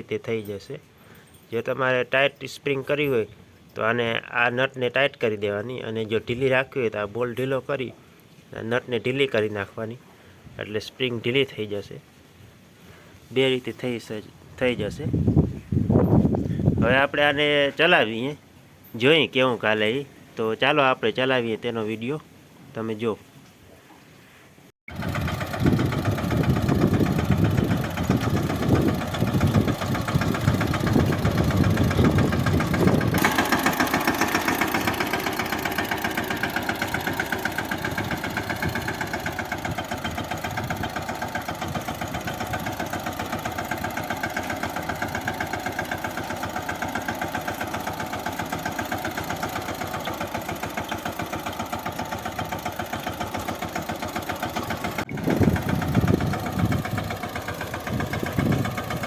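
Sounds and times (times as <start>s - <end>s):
tractor diesel engine running: 24.9s - 59.0s.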